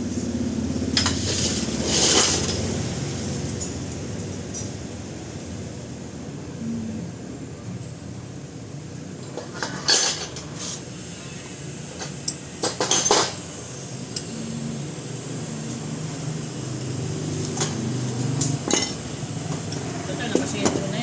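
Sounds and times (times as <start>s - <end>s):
metal tools clinking and knocking: 9.4s - 10.6s
steady low hum: 10.0s - 21.0s.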